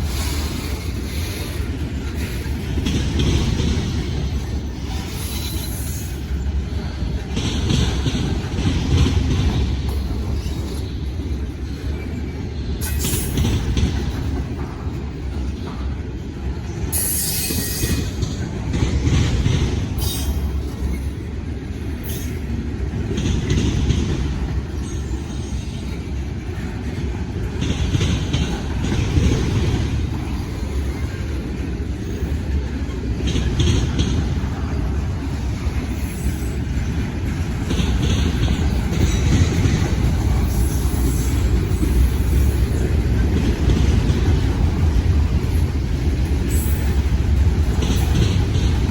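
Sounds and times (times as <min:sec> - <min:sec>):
train wheels squealing: 0:00.0 - 0:03.6, 0:04.4 - 0:06.8, 0:09.9 - 0:14.4, 0:16.8 - 0:18.4, 0:19.9 - 0:21.3, 0:22.0 - 0:22.5, 0:24.6 - 0:27.1, 0:35.8 - 0:37.0, 0:37.8 - 0:42.9, 0:46.4 - 0:47.2
train cars rumbling: 0:00.0 - 0:48.9.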